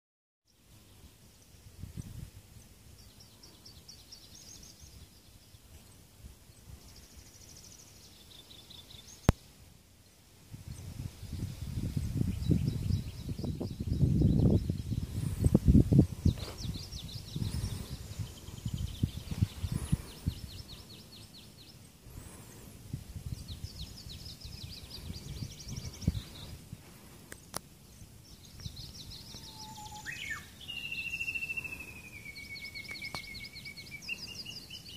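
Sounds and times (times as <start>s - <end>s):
songbird singing: 0.5s - 34.9s
wind buffeting microphone: 1.7s - 2.6s, 10.5s - 21.1s, 22.1s - 27.2s
small birds trilling: 10.7s - 22.7s, 23.3s - 34.9s.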